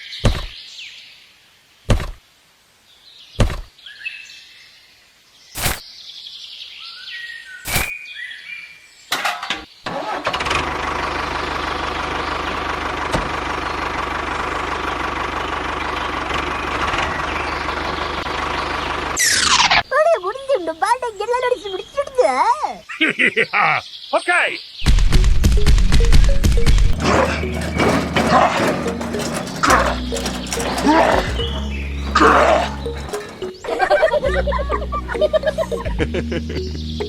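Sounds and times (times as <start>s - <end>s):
birds chirping: 0.0s - 1.2s, 16.0s - 25.0s, 26.0s - 37.0s
sharp knocks: 0.2s - 0.6s
small engine running: 27.0s - 33.6s.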